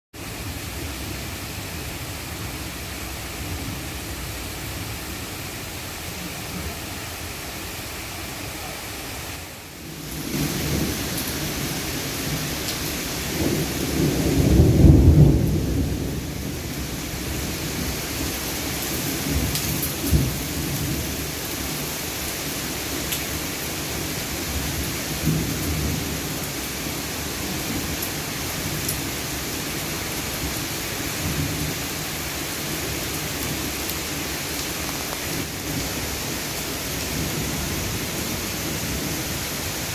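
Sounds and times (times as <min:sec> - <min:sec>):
heavy rain pouring: 0:00.2 - 0:39.9
thunder rumble: 0:09.8 - 0:18.0.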